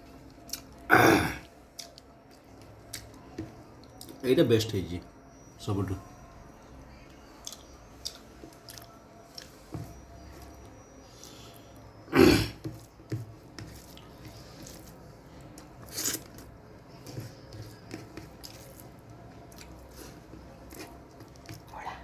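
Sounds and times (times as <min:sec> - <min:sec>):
chewing and mouth noises: 0:01.7 - 0:03.2, 0:07.4 - 0:09.6, 0:13.7 - 0:22.0.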